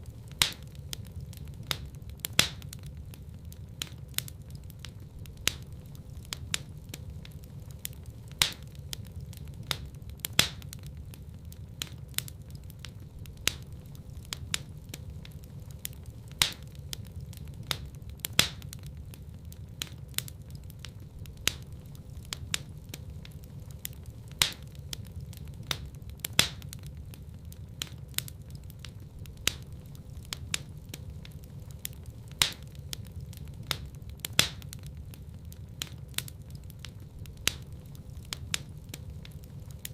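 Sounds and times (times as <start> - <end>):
fire rumbling: 0.0 - 39.9
logs crackling and popping: 0.0 - 39.9.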